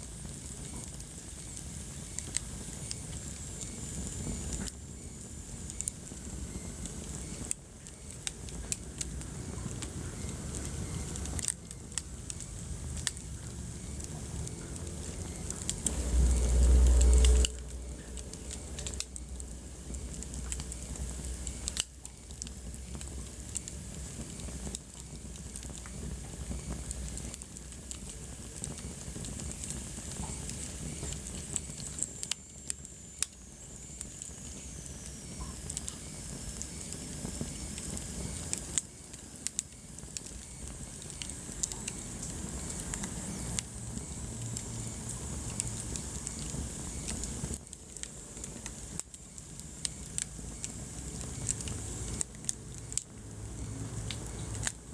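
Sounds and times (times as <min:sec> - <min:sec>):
wood fire crackling: 0:00.0 - 0:54.9
loud deep rumble: 0:13.0 - 0:21.0.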